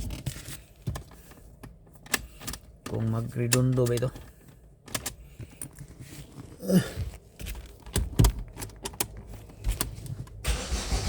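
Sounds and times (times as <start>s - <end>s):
car engine starting: 9.7s - 11.0s.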